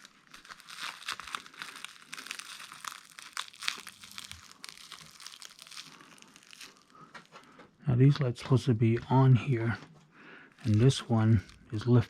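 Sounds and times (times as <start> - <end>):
plastic packaging crinkling: 0.0 - 7.7, 10.5 - 12.0.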